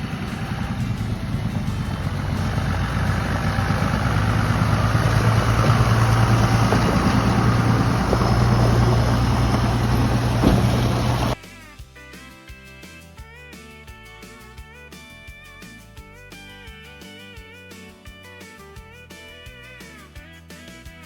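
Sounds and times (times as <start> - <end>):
truck engine running: 0.0 - 11.4.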